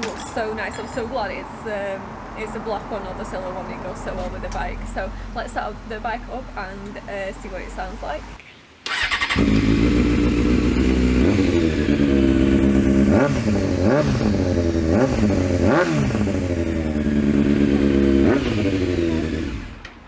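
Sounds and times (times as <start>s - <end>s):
motorcycle engine idling and revving: 8.9s - 20.0s.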